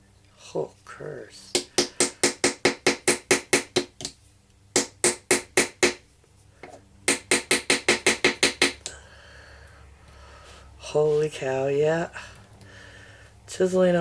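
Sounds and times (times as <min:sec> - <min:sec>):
hammer tapping metal chisel: 0:06.6 - 0:08.9.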